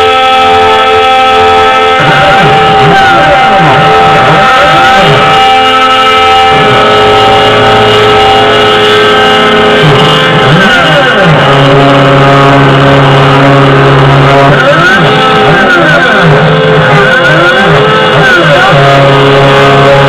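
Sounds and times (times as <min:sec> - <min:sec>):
sweeping up-and-down tones: 0:00.0 - 0:20.0.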